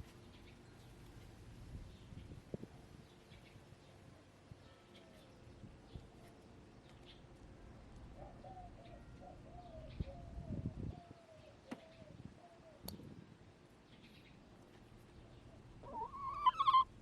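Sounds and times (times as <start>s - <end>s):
rustle: 0.0s - 9.3s
hen clucking: 15.8s - 17.0s.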